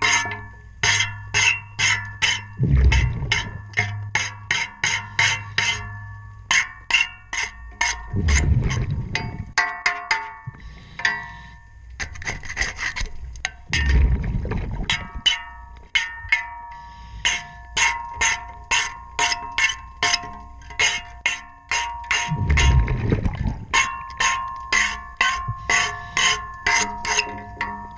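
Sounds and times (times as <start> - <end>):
diver exhaling bubbles: 2.6 - 3.6, 8.1 - 9.5, 13.8 - 14.9, 22.3 - 23.7
scraping on metal propeller: 10.8 - 13.2.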